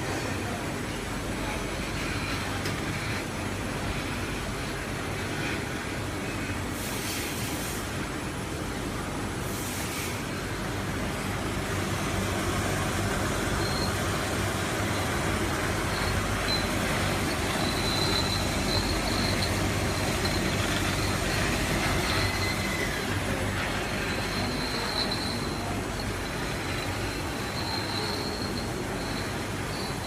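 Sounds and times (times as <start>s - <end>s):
filling machine running: 0.1s - 30.0s
high squeal: 13.0s - 30.0s.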